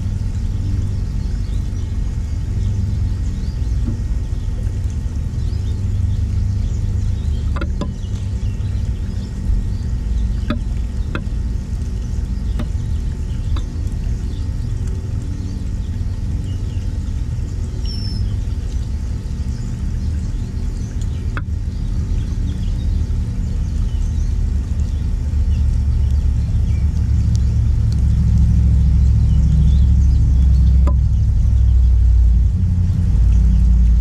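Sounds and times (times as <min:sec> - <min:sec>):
songbird chirps: 0:00.0 - 0:34.0
steady low rumble: 0:00.0 - 0:34.0.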